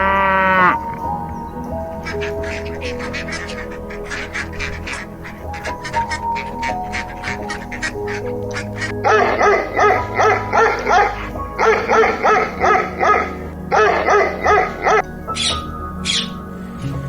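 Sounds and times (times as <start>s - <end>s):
animal barking calls: 0.0s - 16.8s
background music: 0.0s - 17.0s.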